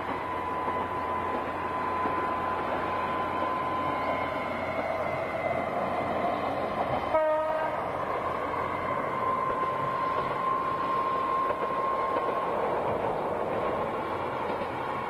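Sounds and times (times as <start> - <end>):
diesel railcar running past: 0.0 - 15.0
short train horn blast: 7.0 - 7.9.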